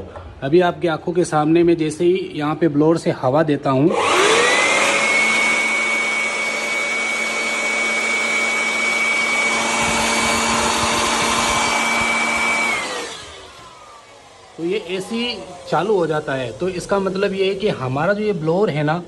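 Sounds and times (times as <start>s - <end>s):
electric air blower whining: 3.8s - 19.0s.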